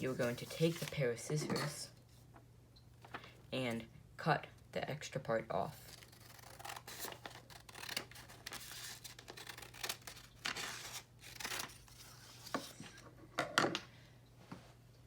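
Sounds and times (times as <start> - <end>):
paper rustling: 0.0 - 1.0
scissors snipping paper: 5.8 - 12.7.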